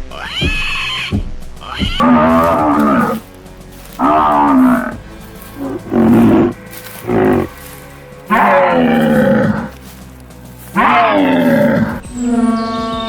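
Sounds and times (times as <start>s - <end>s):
music: 0.0s - 13.0s
high whinny-like dinosaur calls: 2.0s - 3.2s, 5.6s - 7.5s, 8.3s - 9.7s, 10.8s - 13.0s
low bellowing dinosaur roars: 2.0s - 3.2s, 4.0s - 5.0s, 5.6s - 7.6s, 8.3s - 9.8s, 10.7s - 13.0s.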